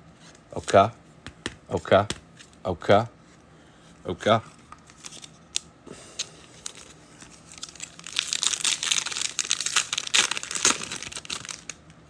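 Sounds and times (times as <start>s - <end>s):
wrapper being torn and crinkled: 4.8s - 5.7s, 6.5s - 11.9s.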